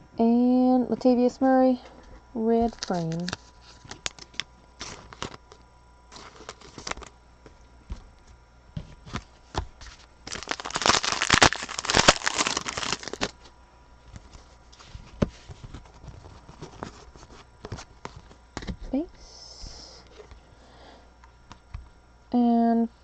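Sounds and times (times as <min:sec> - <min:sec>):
packaging crinkling: 0:02.6 - 0:07.6, 0:09.0 - 0:18.4
trading cards being handled: 0:02.6 - 0:08.0, 0:08.8 - 0:18.7.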